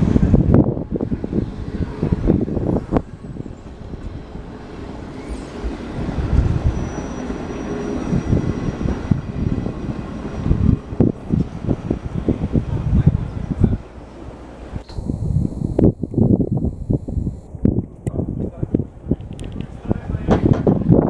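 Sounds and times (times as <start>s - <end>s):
train wheels rumbling on rails: 0.0s - 14.7s, 18.4s - 21.0s
faint high whine: 14.7s - 17.5s.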